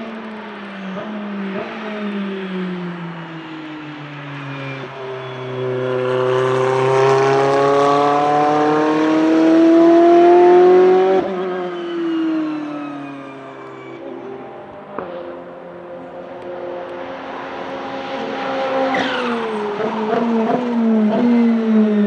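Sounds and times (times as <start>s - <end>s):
race car engine accelerating: 0.5s - 22.0s.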